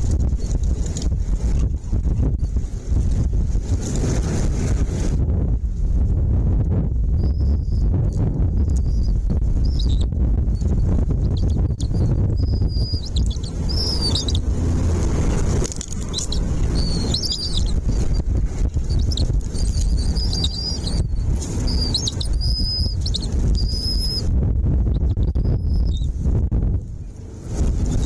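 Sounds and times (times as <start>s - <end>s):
low rumble: 0.0s - 28.0s
small birds chirping: 7.2s - 24.3s, 25.0s - 26.1s.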